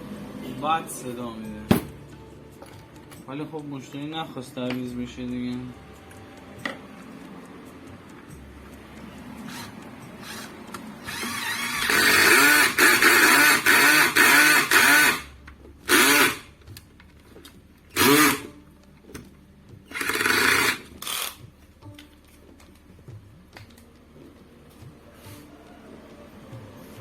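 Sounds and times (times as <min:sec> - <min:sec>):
cordless drill driving screws: 0:09.5 - 0:15.3, 0:15.9 - 0:16.5, 0:17.9 - 0:18.5, 0:19.9 - 0:21.4.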